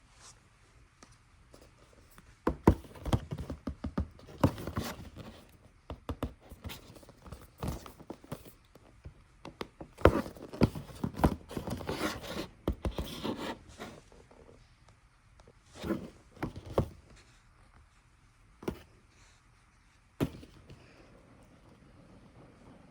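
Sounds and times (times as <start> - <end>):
packaging knocks and scrapes: 2.5 - 8.6, 9.6 - 14.0, 15.8 - 17.2, 20.2 - 21.0.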